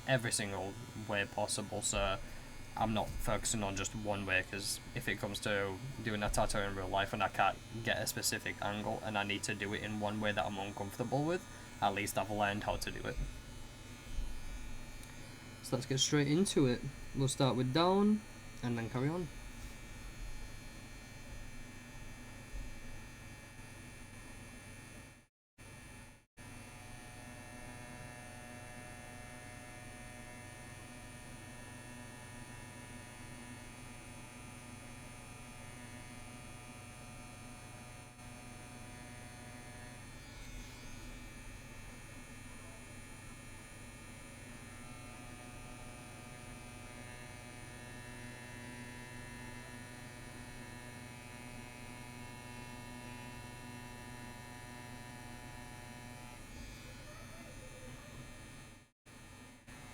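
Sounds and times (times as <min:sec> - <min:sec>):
tattoo machine buzzing: 0:00.0 - 0:59.9.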